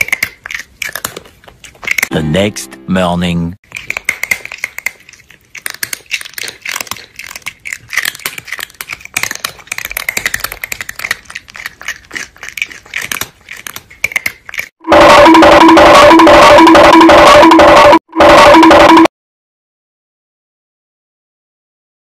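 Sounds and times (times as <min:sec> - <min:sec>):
crunchy food being chewed: 0:00.0 - 0:02.1, 0:03.6 - 0:14.8.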